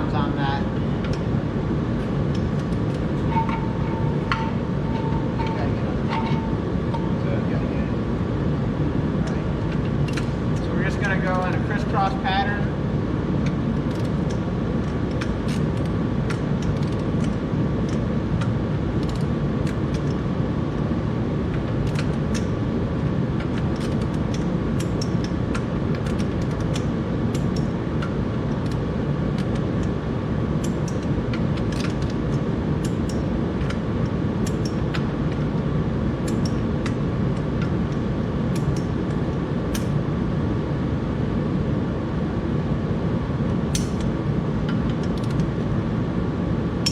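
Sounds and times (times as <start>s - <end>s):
machine hum with faint whine: 0.0s - 46.9s
socket wrench clicking: 23.4s - 28.8s, 30.6s - 35.5s, 36.3s - 37.0s, 38.5s - 38.9s, 43.7s - 44.1s, 44.7s - 45.5s.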